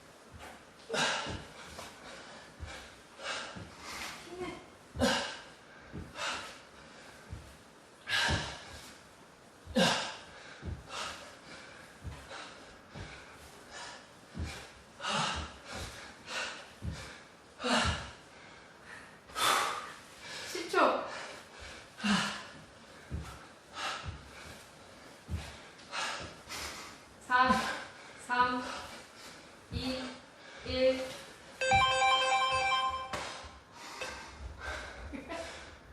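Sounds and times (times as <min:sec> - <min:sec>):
man breathing hard: 0:00.2 - 0:04.2, 0:04.9 - 0:09.0, 0:09.6 - 0:31.5, 0:33.2 - 0:35.9
man gasping for breath: 0:00.9 - 0:04.2, 0:08.0 - 0:08.8, 0:09.6 - 0:20.5
body thumping on floor: 0:31.6 - 0:33.4.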